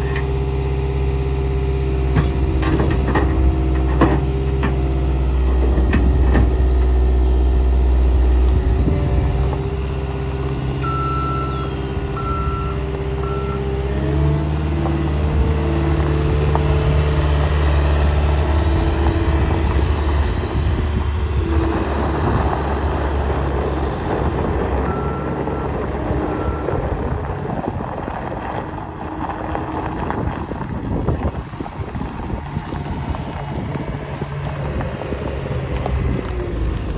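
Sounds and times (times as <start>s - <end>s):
diesel engine working: 0.0s - 36.9s
backup alarm beeping: 10.8s - 13.6s.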